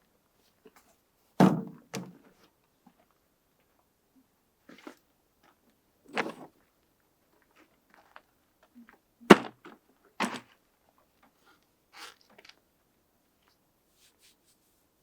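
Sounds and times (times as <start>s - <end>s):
knocks and thumps: 1.4s - 2.1s.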